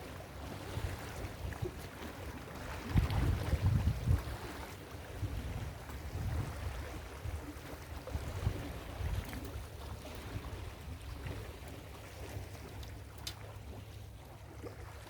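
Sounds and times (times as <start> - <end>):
ocean surf on beach: 0.0 - 1.3
wind on microphone: 2.6 - 11.6.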